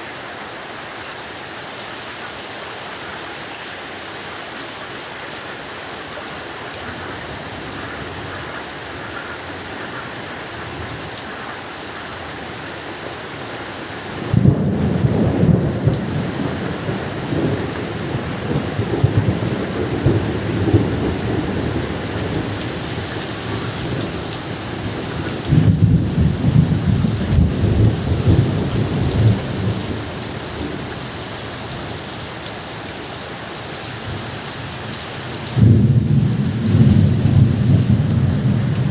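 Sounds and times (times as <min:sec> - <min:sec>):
steady rain falling: 0:00.0 - 0:38.9
thunder rumbling: 0:14.2 - 0:30.9, 0:35.6 - 0:38.9.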